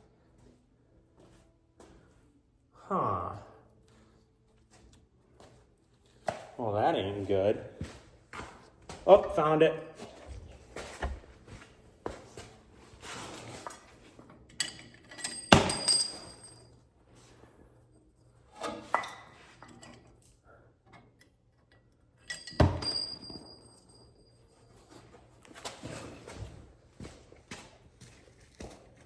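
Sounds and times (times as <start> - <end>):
metal hardware clinking: 13.3 - 16.7, 18.5 - 20.3, 20.9 - 24.9
sharp ringing metal clanks: 14.6 - 16.7, 22.2 - 24.3.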